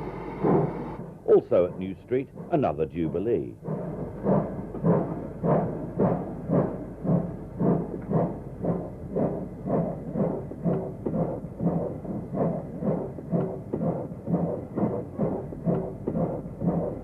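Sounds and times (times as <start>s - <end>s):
steam locomotive chuffing: 0.0s - 17.0s.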